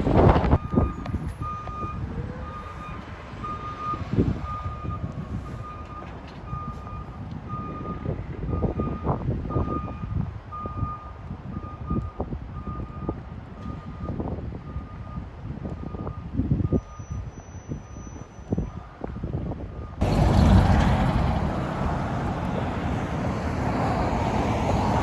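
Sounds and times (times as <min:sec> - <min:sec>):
wind noise: 0:00.0 - 0:25.0
truck back-up alarm beeping: 0:00.6 - 0:18.9
truck engine rumble: 0:18.6 - 0:25.0.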